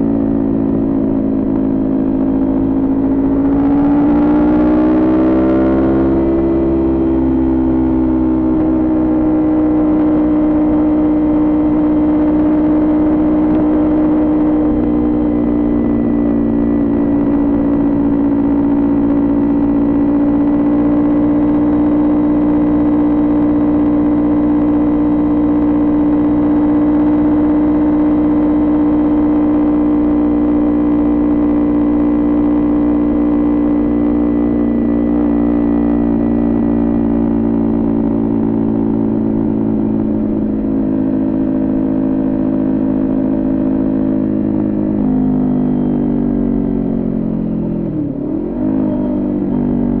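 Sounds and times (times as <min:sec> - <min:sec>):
motorcycle engine cruising: 0:00.0 - 0:50.0.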